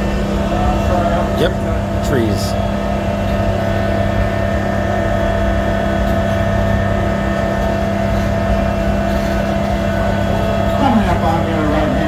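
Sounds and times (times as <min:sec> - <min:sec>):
train engine drone: 0:00.0 - 0:12.0.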